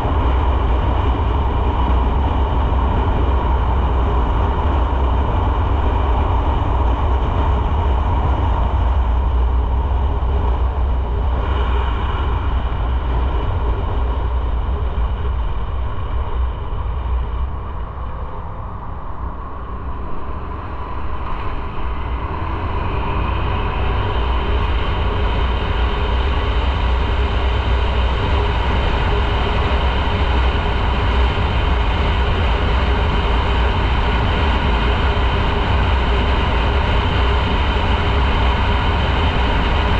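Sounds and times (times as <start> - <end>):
wind noise on microphone: 0.0 - 39.9
motorcycle engine running: 19.6 - 39.9.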